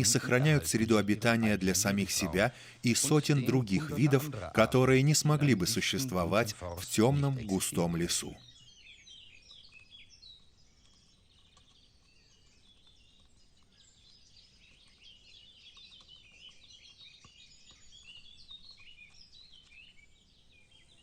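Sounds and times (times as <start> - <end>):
songbirds chirping and trilling: 0.0 - 21.0.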